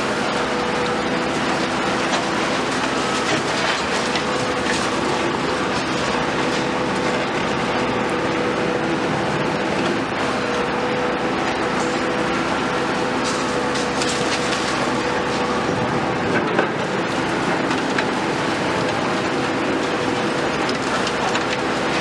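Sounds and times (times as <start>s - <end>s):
excavator engine and hydraulics whine: 0.0s - 22.0s
metal and rubble clanking: 2.0s - 7.1s, 13.2s - 16.9s.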